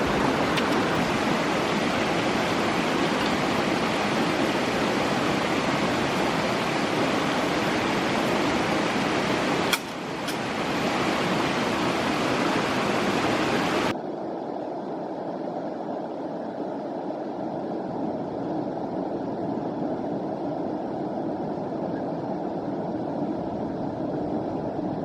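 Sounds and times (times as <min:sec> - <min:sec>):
stream water rushing: 0:00.0 - 0:14.3.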